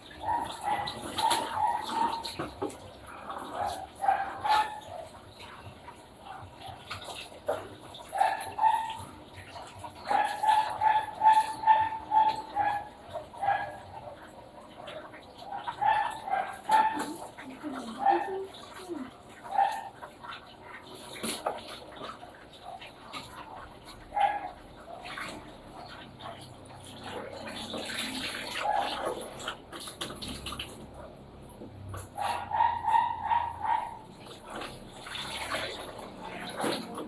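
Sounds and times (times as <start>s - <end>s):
running water: 0.0s - 37.0s
dog barking: 0.1s - 2.7s, 3.3s - 5.2s, 7.5s - 9.2s, 10.0s - 14.2s, 15.5s - 18.5s, 19.4s - 20.0s, 24.1s - 25.4s, 28.6s - 29.2s, 32.2s - 34.7s.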